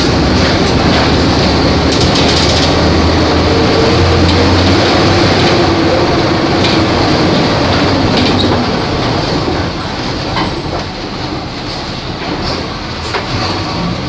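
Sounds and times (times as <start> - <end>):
bus diesel engine running: 0.0 - 14.0
rattles and clicks: 0.0 - 14.0
road noise: 0.0 - 14.0.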